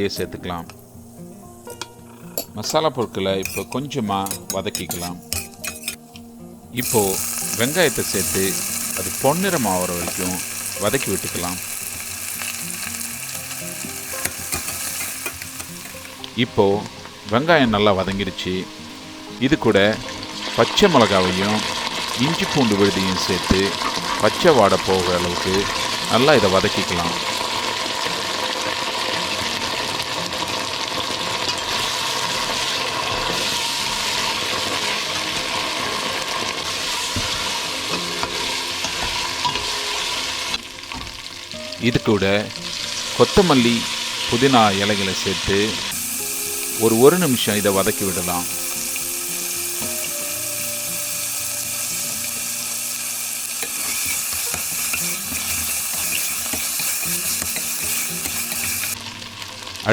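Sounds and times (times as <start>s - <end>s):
onions sizzling in a pan: 0.0s - 59.9s
spoon scraping a pot: 3.4s - 6.1s, 53.5s - 59.0s.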